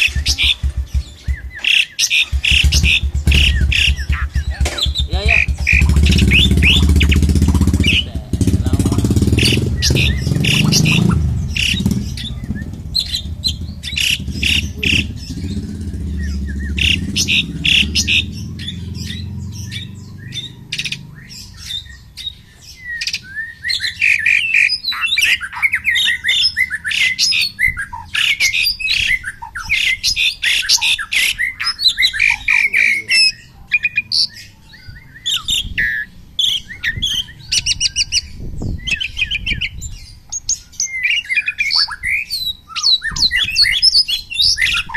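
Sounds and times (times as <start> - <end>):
low engine rumble: 0.0 - 22.9
bird whistled warbling: 0.0 - 39.8
birds harsh chattering: 0.0 - 44.9.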